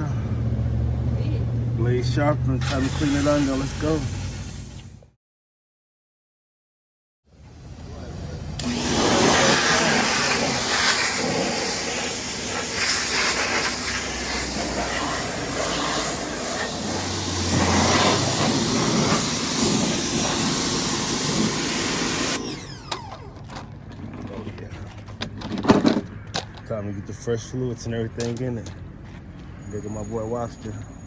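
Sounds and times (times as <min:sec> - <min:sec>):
pressure washer jet hissing: 0:02.6 - 0:05.0, 0:08.6 - 0:23.1.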